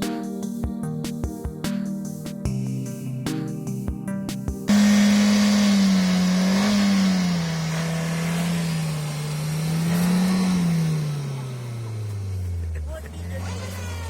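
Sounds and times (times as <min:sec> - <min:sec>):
loud hiss: 0:04.7 - 0:12.3
car engine revving hard: 0:04.7 - 0:14.0.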